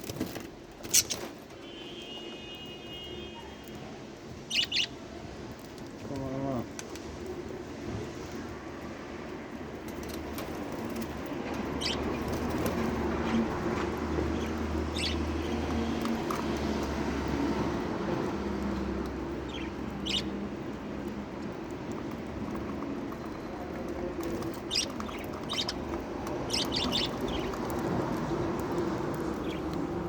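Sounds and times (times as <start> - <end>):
lovebirds chirping: 4.5 - 5.0, 14.2 - 16.1, 19.3 - 20.5, 23.2 - 30.0.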